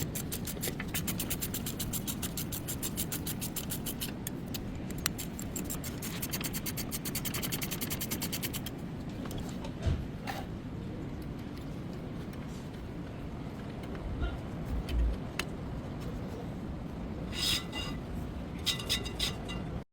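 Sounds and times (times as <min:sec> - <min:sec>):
rapid mechanical clicking: 0:00.0 - 0:08.8.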